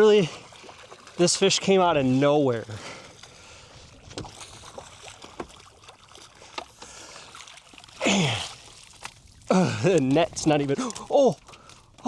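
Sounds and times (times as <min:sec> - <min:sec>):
water lapping and splashing: 0:00.0 - 0:12.0
light knocks against boat: 0:04.0 - 0:04.5, 0:05.2 - 0:05.6.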